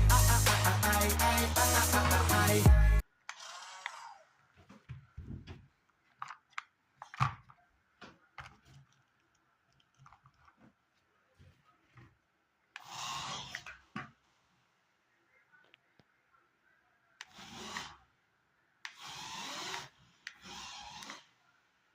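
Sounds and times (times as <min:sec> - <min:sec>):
small electric motor whirring: 0:18.9 - 0:21.3.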